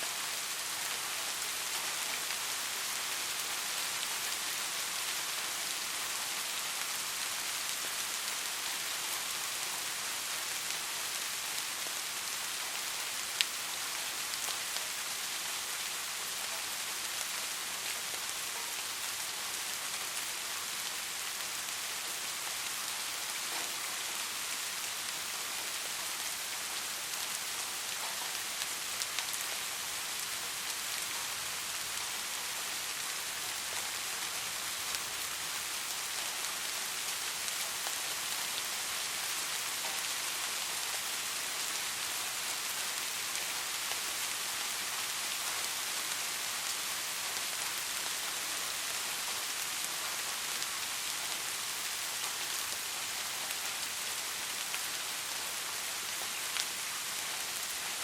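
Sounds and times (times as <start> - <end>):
rain falling on a surface: 0.0 - 58.0.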